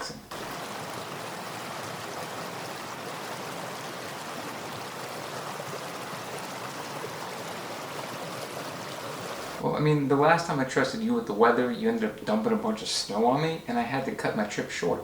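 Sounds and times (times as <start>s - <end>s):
rushing water: 0.0s - 9.6s.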